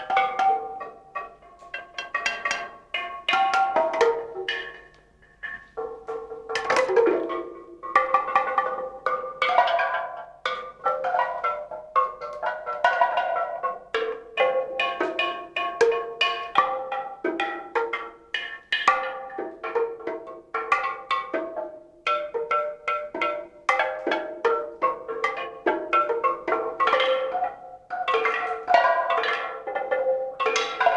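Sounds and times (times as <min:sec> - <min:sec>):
struck tuned percussion notes: 0:00.0 - 0:30.9.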